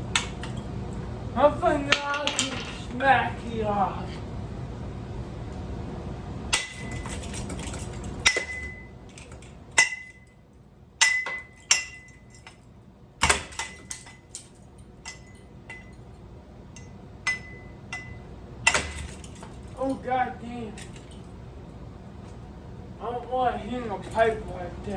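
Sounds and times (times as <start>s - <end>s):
metal fan parts struck and ringing: 6.5s - 10.4s, 11.0s - 19.8s.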